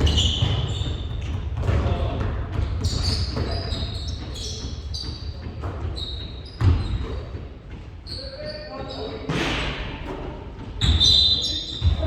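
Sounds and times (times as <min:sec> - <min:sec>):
ball bouncing: 0:00.0 - 0:07.8
sneakers squeaking on floor: 0:00.0 - 0:12.0.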